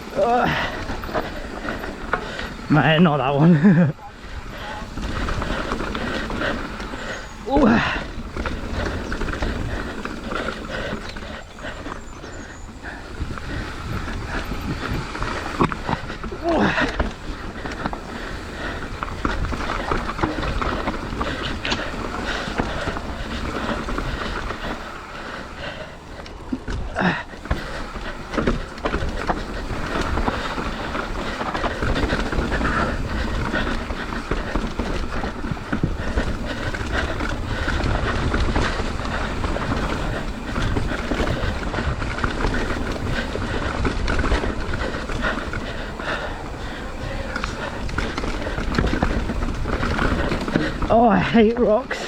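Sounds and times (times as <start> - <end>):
bike frame and chain rattling: 0.0 - 52.0
tyres crunching over dirt and rock: 0.0 - 52.0
wind rumbling on microphone: 0.0 - 52.0.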